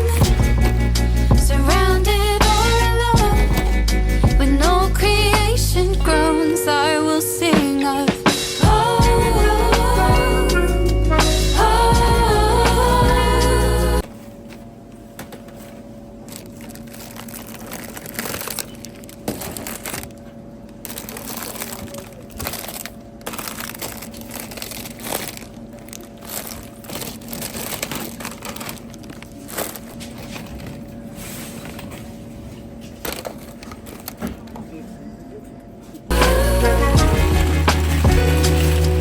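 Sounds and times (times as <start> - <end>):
crinkling and rustling: 14.0 - 35.1, 35.8 - 39.0.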